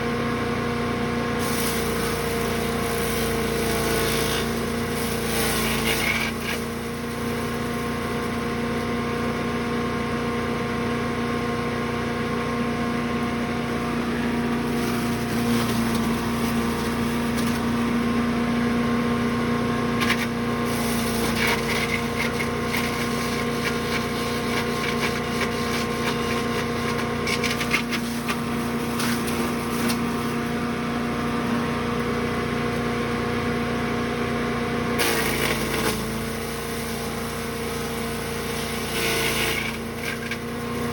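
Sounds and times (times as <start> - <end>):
wood chipper engine running: 0.0 - 40.9
short crackles: 20.0 - 30.4.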